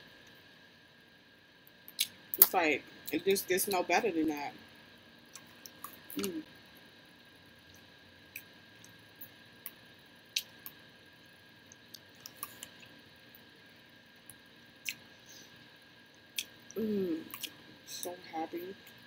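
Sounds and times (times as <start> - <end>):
wet mouth clicks while chewing: 11.8 - 12.9, 17.3 - 17.6
person humming: 16.8 - 17.3.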